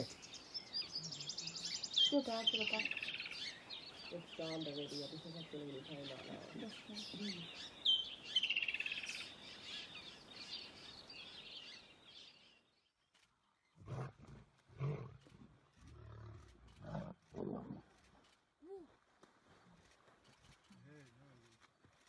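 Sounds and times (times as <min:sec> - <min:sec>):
birds chirping: 0:00.0 - 0:22.0
lion roaring: 0:13.8 - 0:17.9.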